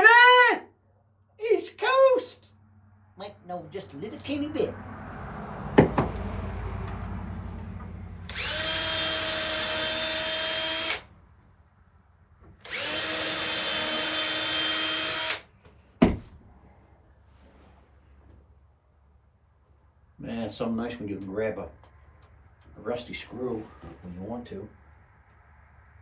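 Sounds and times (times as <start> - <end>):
knock: 5.8 - 6.3, 16.0 - 16.3
electric drill motor running: 8.2 - 11.1, 12.6 - 15.5.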